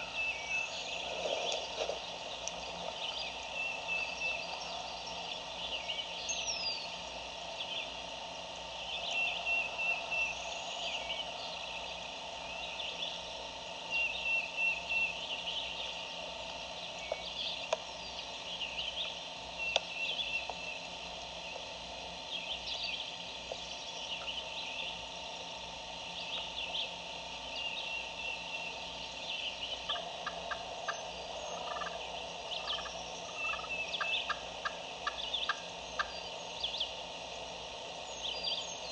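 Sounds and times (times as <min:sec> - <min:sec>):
songbirds chirping and trilling: 0:00.0 - 0:38.9
distant turkey gobbling: 0:29.7 - 0:36.9.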